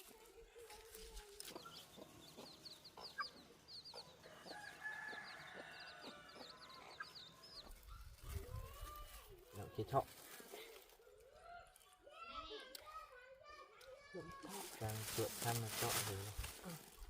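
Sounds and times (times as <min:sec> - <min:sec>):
faint chickens clucking: 0:00.1 - 0:10.2.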